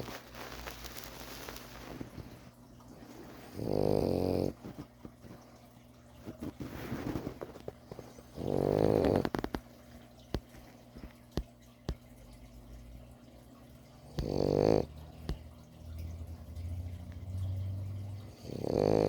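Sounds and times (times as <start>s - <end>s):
puppy snoring: 3.4s - 4.9s, 6.4s - 9.6s, 14.0s - 15.5s, 18.2s - 19.0s
soft raspy breathing: 14.1s - 14.9s.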